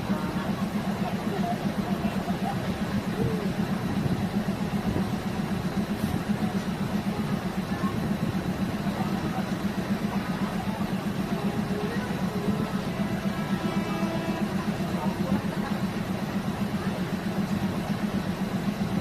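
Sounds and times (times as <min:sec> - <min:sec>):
faint voices: 0:00.0 - 0:19.0
train diesel engine throbbing: 0:00.0 - 0:19.0.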